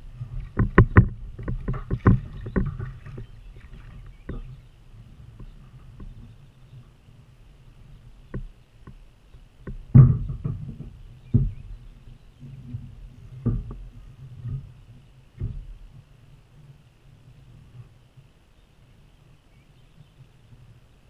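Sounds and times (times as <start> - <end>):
hollow knocks against kayak hull: 0.2 - 4.6, 5.3 - 6.4, 8.2 - 16.0.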